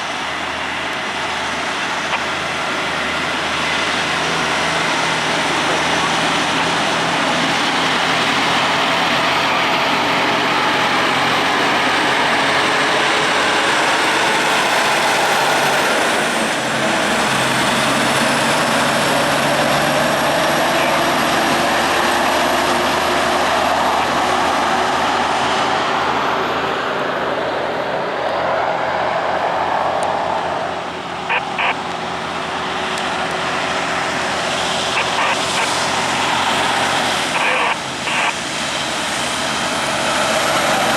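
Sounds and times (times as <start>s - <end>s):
low engine hum: 0.0s - 40.9s
truck engine and road noise: 0.0s - 40.9s.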